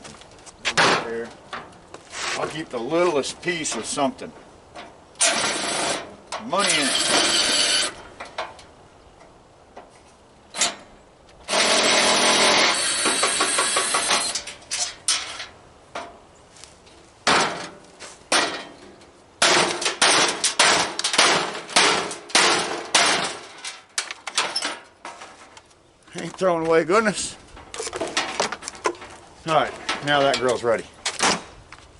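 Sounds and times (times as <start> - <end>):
metal clanks and knocks: 4.7 - 8.7, 13.0 - 16.2, 17.2 - 25.6, 27.5 - 31.5
harsh tool noise: 5.2 - 8.0, 11.5 - 14.5.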